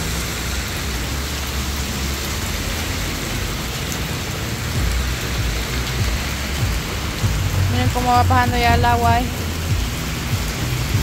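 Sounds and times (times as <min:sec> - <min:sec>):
heavy rain on wet pavement: 0:00.0 - 0:11.0
low rumble: 0:04.6 - 0:11.0.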